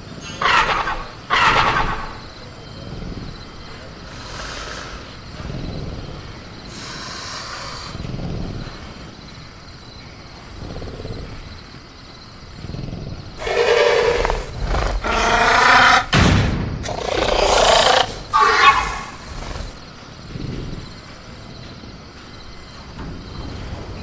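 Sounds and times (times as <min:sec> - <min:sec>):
raspy roaring calls: 0:00.0 - 0:16.2, 0:16.8 - 0:24.0
crickets chirping: 0:00.0 - 0:24.0
creature growling: 0:12.6 - 0:16.1, 0:16.8 - 0:21.0
creature hissing: 0:16.8 - 0:19.8.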